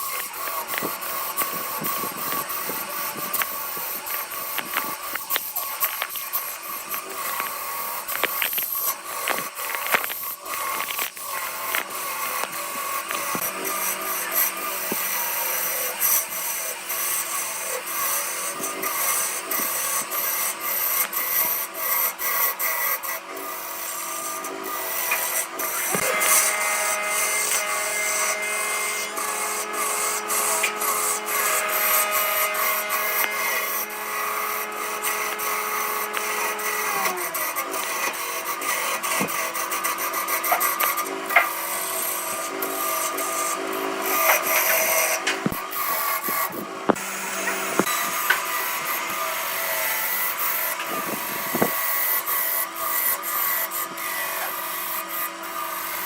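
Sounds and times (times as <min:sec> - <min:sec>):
tool scraping spinning wood: 0:00.0 - 0:56.0
wood lathe motor humming: 0:00.0 - 0:56.0.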